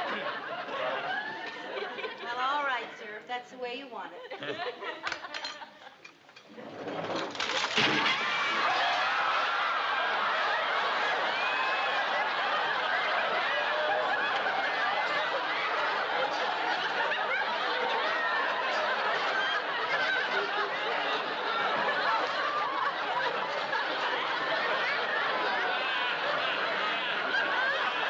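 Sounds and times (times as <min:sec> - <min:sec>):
studio audience laughing: 0:00.0 - 0:02.8, 0:04.2 - 0:06.1, 0:07.4 - 0:28.0.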